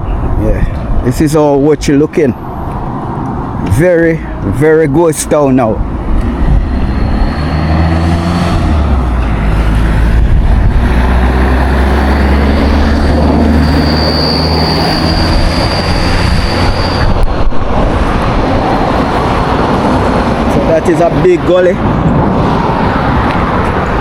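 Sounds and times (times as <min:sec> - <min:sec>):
road vehicle rumble: 0:00.0 - 0:24.0
high-pitched whine: 0:05.8 - 0:17.9.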